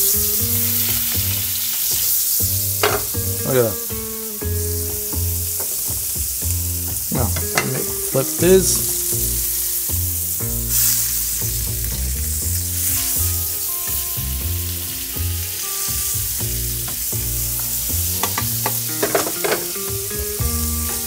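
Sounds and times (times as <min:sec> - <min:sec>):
meat and onions sizzling: 0:00.0 - 0:21.0
utensil clicking against pan: 0:18.2 - 0:19.8.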